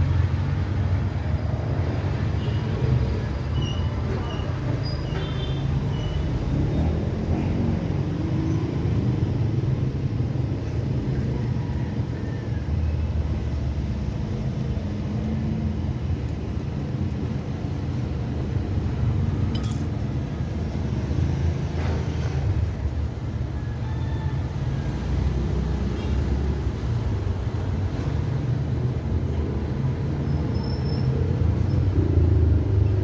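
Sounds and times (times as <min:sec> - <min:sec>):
sharp clink: 0:19.5 - 0:20.0.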